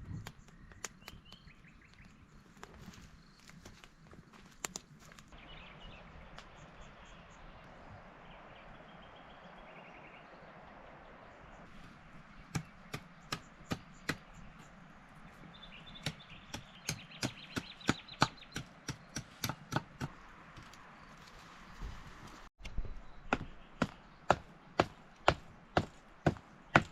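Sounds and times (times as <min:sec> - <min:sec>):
hand tool striking wood: 0:16.0 - 0:20.1, 0:23.3 - 0:26.9.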